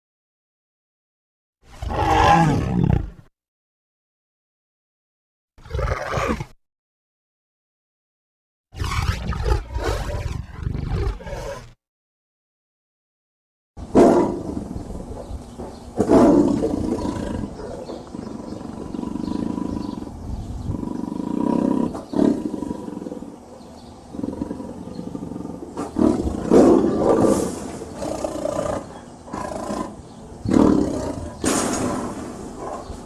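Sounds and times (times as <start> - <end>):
tiger growling: 1.7 - 3.3, 5.6 - 6.6, 8.8 - 11.8, 24.1 - 32.8
tiger roaring: 1.7 - 3.3, 5.6 - 6.6, 8.8 - 11.8, 24.2 - 32.8.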